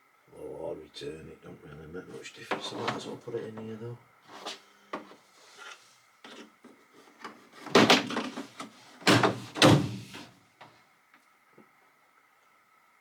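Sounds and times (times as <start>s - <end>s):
loud clunks with rattle: 7.6s - 10.3s.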